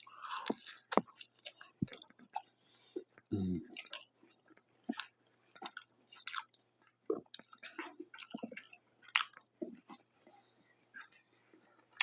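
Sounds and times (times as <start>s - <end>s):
close chewing with wet mouth smacks: 0.0s - 12.0s.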